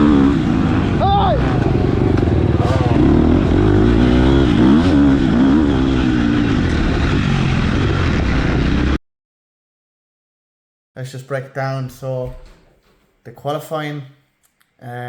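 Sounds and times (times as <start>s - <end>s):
motocross bike engine revving: 0.0s - 9.0s.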